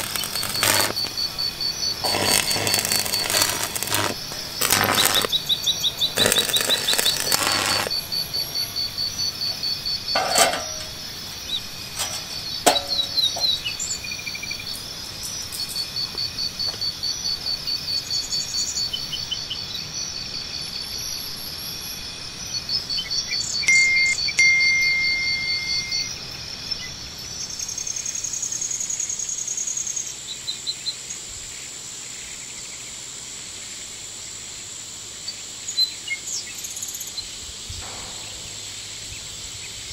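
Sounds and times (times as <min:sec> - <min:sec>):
sharp clicks: 0:00.0 - 0:01.2, 0:02.0 - 0:05.3, 0:06.2 - 0:08.0
insects chirping: 0:00.0 - 0:39.9.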